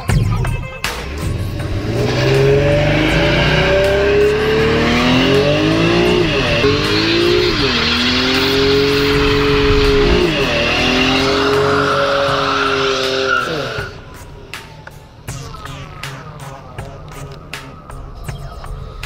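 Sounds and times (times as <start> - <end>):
car engine at high revs: 1.0 - 15.2
tires squealing: 1.0 - 19.0.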